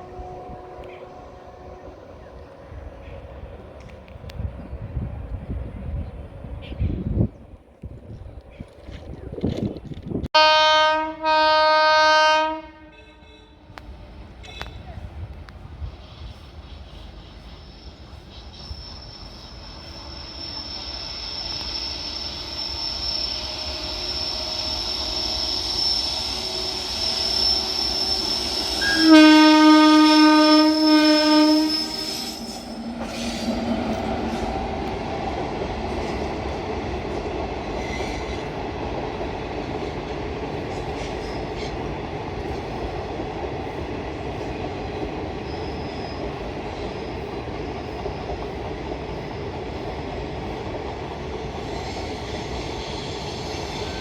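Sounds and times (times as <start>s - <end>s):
train horn blast: 0.0s - 2.3s, 10.4s - 14.8s, 26.4s - 34.0s
rumble of train wheels: 0.0s - 54.0s
train approaching with high whine: 0.0s - 54.0s.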